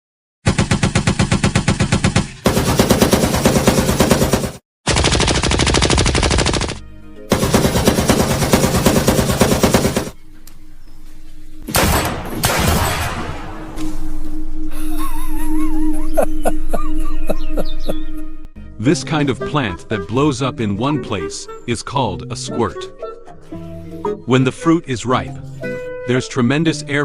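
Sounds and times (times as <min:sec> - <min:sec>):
machine-gun bursts: 0:00.5 - 0:10.2, 0:11.7 - 0:13.4.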